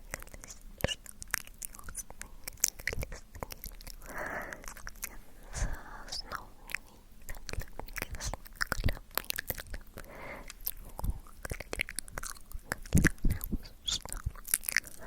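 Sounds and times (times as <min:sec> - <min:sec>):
tongue clicks: 0:00.0 - 0:05.2, 0:06.0 - 0:15.0
wet lip smacks: 0:05.8 - 0:15.0.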